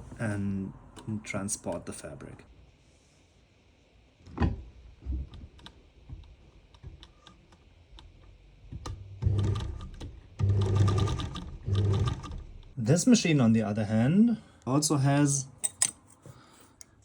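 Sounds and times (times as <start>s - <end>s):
electric sewing machine stitching: 8.9s - 12.7s.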